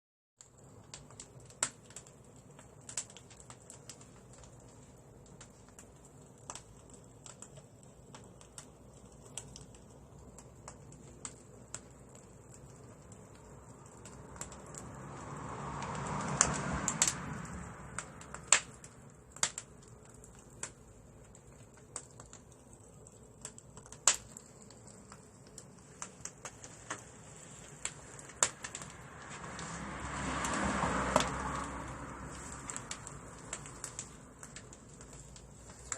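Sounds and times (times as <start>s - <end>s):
rushing flame noise: 0.4s - 35.9s
wood fire crackling and popping: 0.4s - 35.9s.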